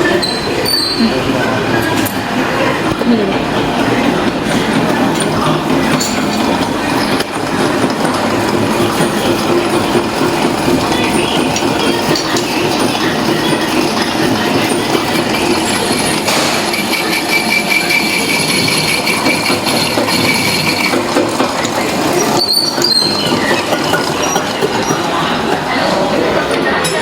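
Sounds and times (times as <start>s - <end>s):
factory machinery clattering: 0.0s - 27.0s
faint high machine whines: 8.7s - 27.0s.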